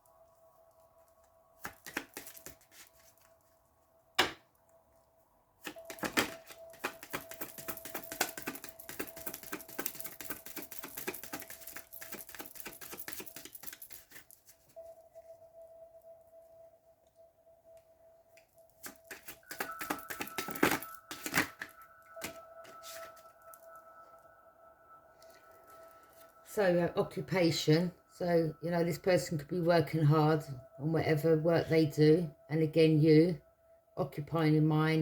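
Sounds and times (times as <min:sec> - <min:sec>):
cards snapping: 0:01.6 - 0:02.8, 0:05.6 - 0:14.2, 0:18.8 - 0:23.0
deck slapping: 0:01.6 - 0:02.8, 0:05.6 - 0:14.2, 0:18.8 - 0:23.0
cards shuffling: 0:01.6 - 0:03.2, 0:05.6 - 0:14.7, 0:18.8 - 0:23.3.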